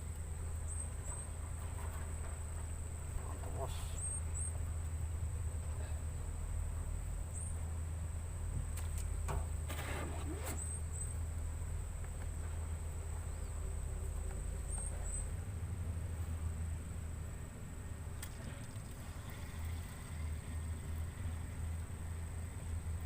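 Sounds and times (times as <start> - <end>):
rustles and clicks: 8.6 - 10.7
crickets trilling: 18.3 - 23.0.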